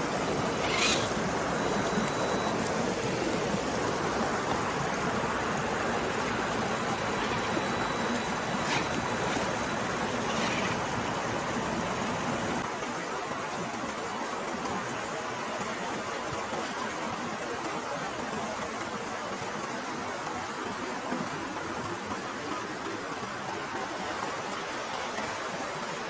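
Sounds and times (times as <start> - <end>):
water rushing: 0.0 - 12.6.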